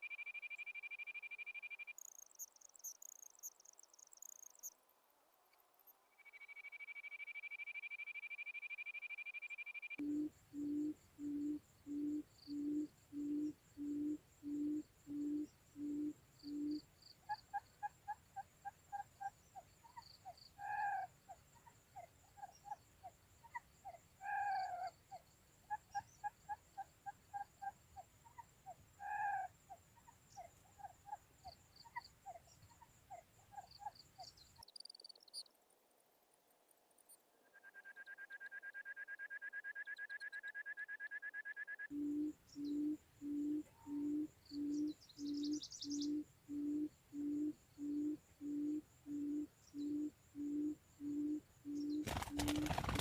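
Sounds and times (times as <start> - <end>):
low bird hoots: 9.5 - 18.2, 18.9 - 28.4, 29.0 - 29.5, 41.8 - 53.0.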